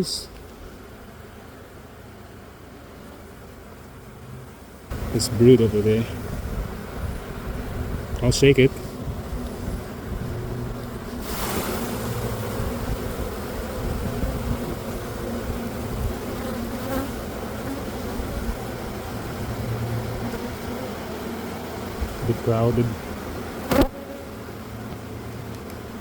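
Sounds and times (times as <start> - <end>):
honeybees buzzing: 0.0 - 26.0
short rush of noise: 11.0 - 13.3.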